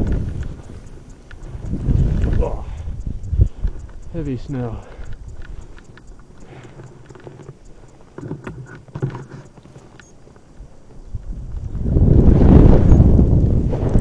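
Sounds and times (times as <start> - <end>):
skis crunching in snow: 0.0 - 2.8
rush of snow and wind: 0.0 - 14.0.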